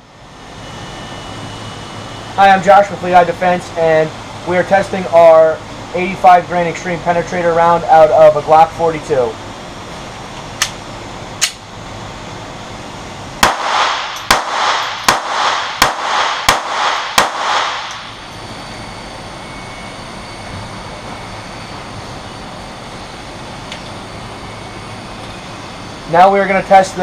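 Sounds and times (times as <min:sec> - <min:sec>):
sharp clicks: 0:13.4 - 0:18.0
pistol shots: 0:13.4 - 0:18.1.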